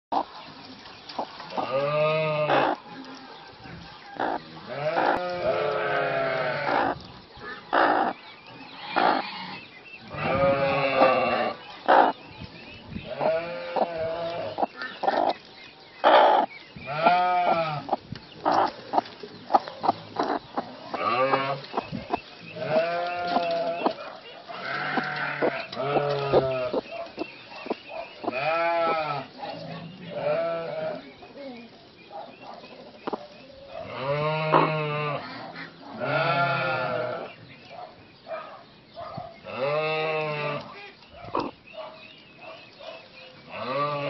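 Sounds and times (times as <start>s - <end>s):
livestock bleating: 4.7s - 7.0s, 8.8s - 11.6s, 13.1s - 14.5s, 16.9s - 17.9s, 22.6s - 23.8s, 24.6s - 26.8s, 28.3s - 29.3s, 30.1s - 31.0s, 34.0s - 35.2s, 36.0s - 37.2s.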